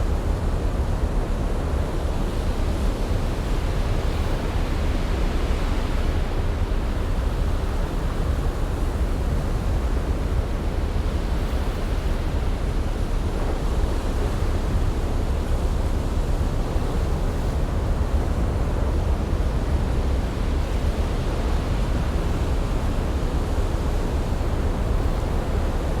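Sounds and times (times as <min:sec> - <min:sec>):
ocean rushing with deep rumble: 0:00.0 - 0:26.0.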